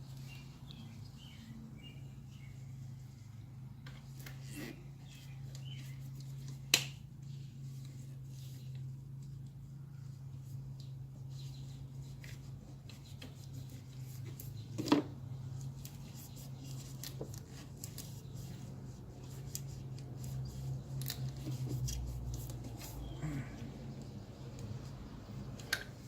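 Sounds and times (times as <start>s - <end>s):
small clicks and rubbing: 10.7s - 23.0s.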